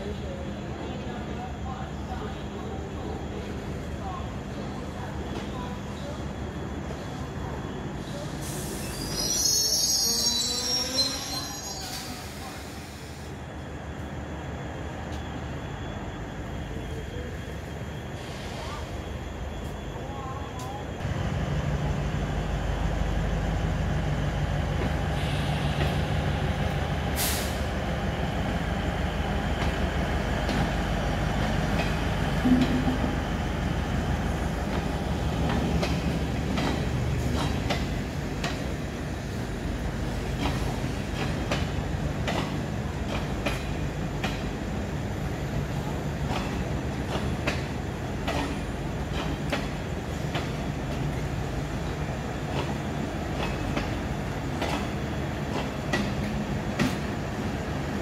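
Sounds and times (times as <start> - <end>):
diesel train engine humming: 21.0 - 58.0
wheels clicking over rail joints: 34.7 - 38.7, 46.2 - 51.2, 51.8 - 57.1.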